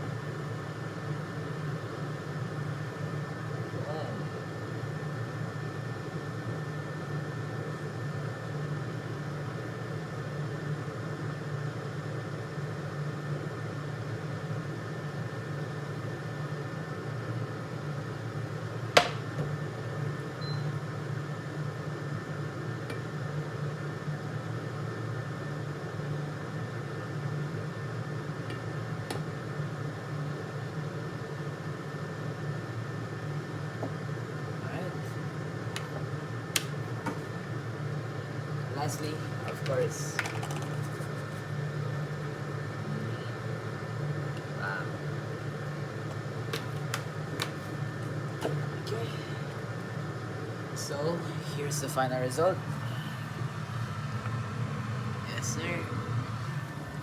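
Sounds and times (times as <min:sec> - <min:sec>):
fan humming: 0:00.0 - 0:57.0.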